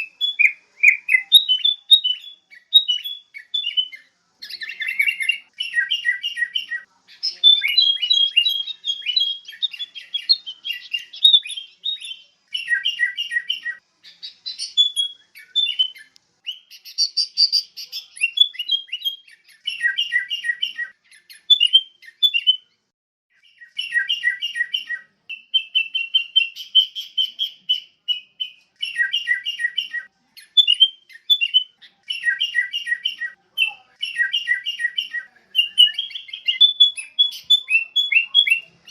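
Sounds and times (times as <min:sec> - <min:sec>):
bird chirping song: 0:00.0 - 0:38.9.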